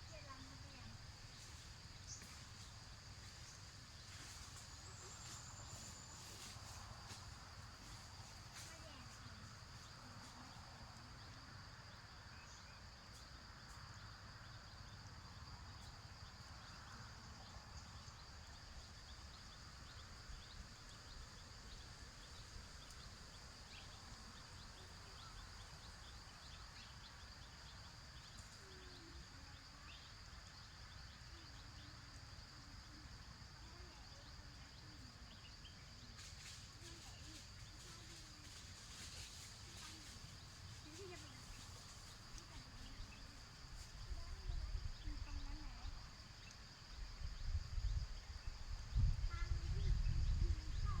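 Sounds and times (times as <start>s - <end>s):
faint ticks: 22.2s - 23.9s, 46.4s - 46.6s.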